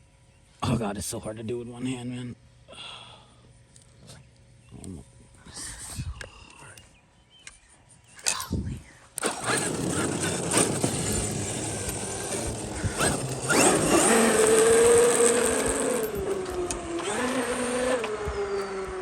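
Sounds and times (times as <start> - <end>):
electric motor whining: 9.2 - 19.0.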